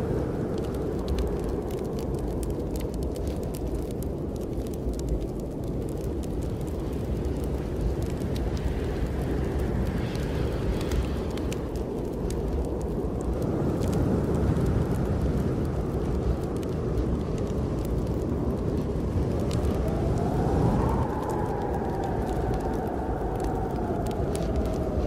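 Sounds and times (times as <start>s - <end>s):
howling wind gust: 0.0s - 25.0s
wind blowing: 0.0s - 25.0s
wood fire crackling: 0.0s - 25.0s.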